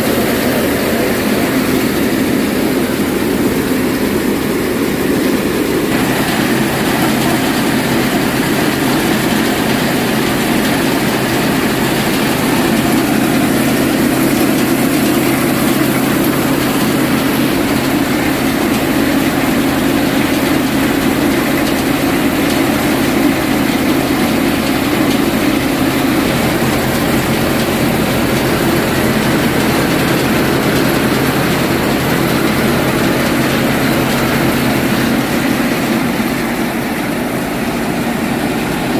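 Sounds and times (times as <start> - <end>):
thresher working: 0.0 - 38.9
tractor diesel engine running: 0.0 - 38.9.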